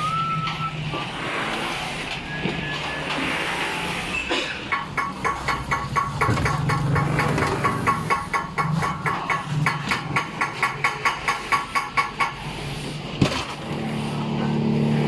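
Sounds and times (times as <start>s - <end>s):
rapid metallic clicks: 4.7s - 12.4s.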